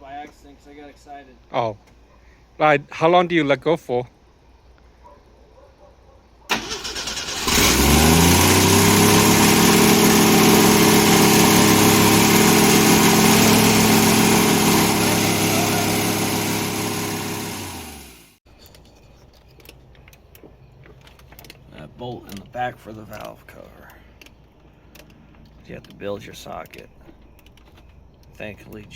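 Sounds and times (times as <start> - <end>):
engine starter cranking: 6.5 - 18.3
car engine running: 7.4 - 18.4.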